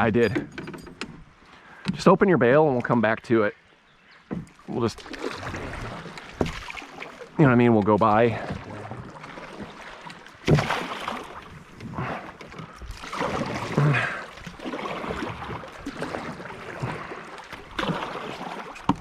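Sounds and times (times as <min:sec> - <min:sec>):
paddle splashes: 0:04.1 - 0:19.0.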